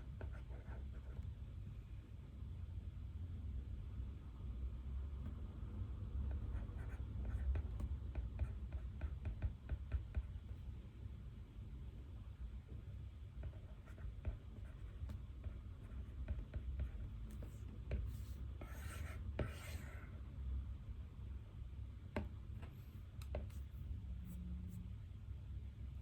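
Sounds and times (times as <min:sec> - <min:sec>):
low room hum: 0:00.0 - 0:26.0
pen scratching on paper: 0:00.2 - 0:01.2, 0:06.3 - 0:10.5, 0:13.4 - 0:20.1.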